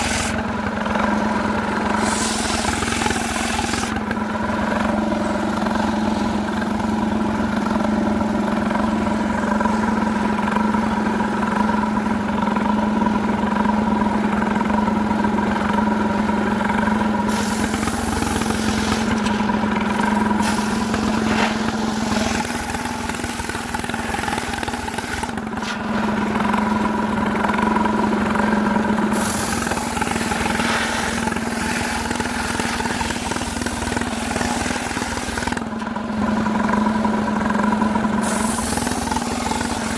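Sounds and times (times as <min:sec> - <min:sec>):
hiss: 0:00.0 - 0:00.4, 0:01.9 - 0:04.0, 0:17.2 - 0:25.8, 0:29.1 - 0:35.6, 0:38.1 - 0:39.9
chainsaw running at high speed: 0:00.0 - 0:39.9.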